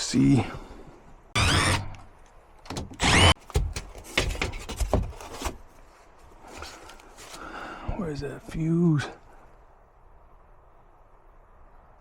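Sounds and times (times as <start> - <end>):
cordless drill running: 1.4 - 2.0, 3.0 - 3.4.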